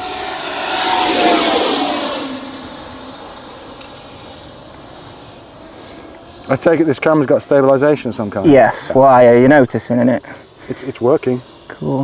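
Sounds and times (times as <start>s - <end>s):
model jet fan whining: 0.0s - 12.0s.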